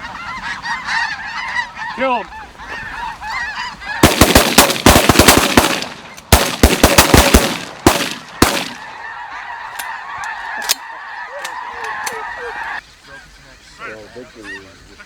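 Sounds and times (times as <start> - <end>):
geese honking: 0.0 - 15.0
shotgun shots: 4.0 - 8.9.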